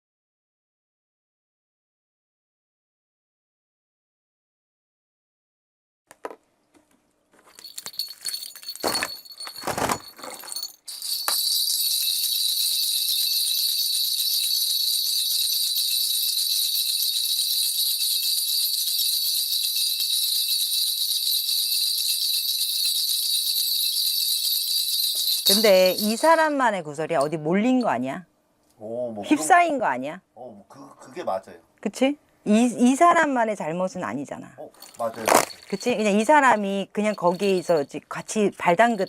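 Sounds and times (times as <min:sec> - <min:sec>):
brass bells jingling: 0:07.5 - 0:28.0, 0:34.7 - 0:38.0, 0:38.6 - 0:39.0.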